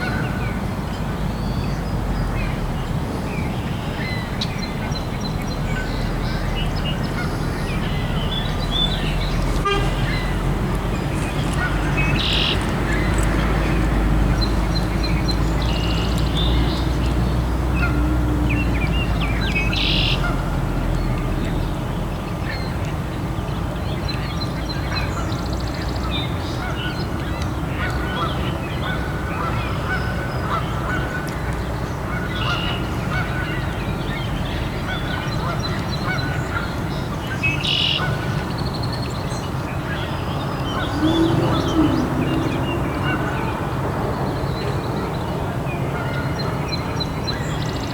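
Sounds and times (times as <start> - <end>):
waterfowl calling: 7.1 - 14.7, 39.9 - 44.7
low rumble: 40.4 - 44.6.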